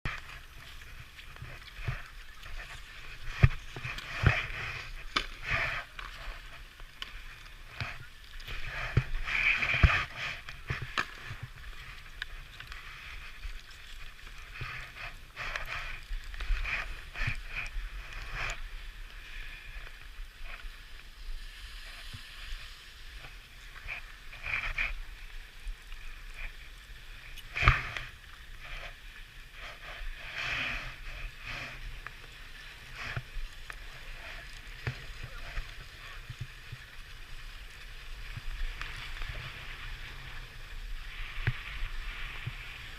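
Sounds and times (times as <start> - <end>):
skis scraping over snow: 0.0 - 42.9
wind rumble on microphone: 0.0 - 42.9.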